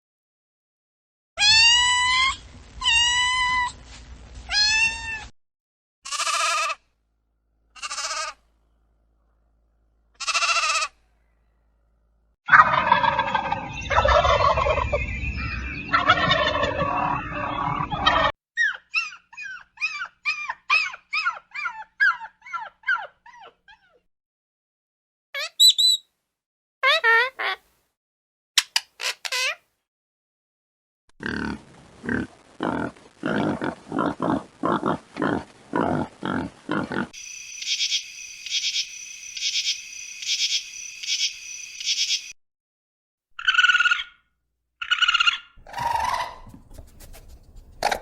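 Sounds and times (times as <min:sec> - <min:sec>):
repeated arched animal calls: 0:06.1 - 0:06.8, 0:07.7 - 0:08.4, 0:10.2 - 0:11.0, 0:36.7 - 0:42.3, 0:44.8 - 0:48.0
gobbling fowl calls: 0:12.5 - 0:14.9, 0:15.9 - 0:18.3, 0:44.9 - 0:46.9
short bird chirps: 0:25.5 - 0:26.0.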